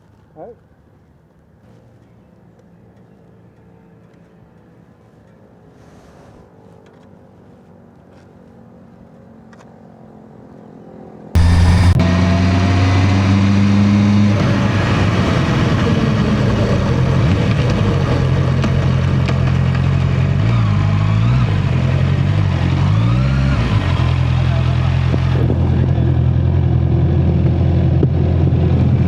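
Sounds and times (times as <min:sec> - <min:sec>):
faint steady hum: 0:11.4 - 0:12.0
motorcycle engine running: 0:11.4 - 0:12.1.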